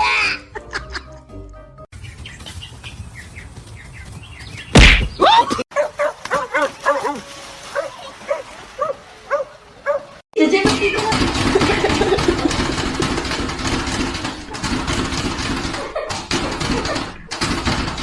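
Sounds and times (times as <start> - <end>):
background music: 0.0 - 1.8
loud thump: 4.7 - 5.2
dog barking: 5.7 - 10.2.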